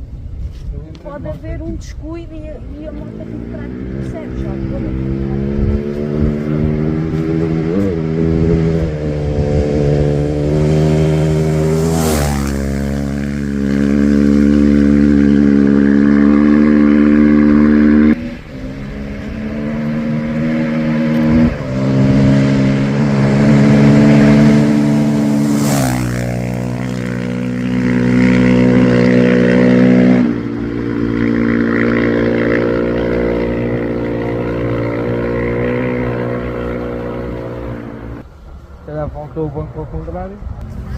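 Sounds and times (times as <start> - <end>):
engine running hard: 2.8 - 38.2.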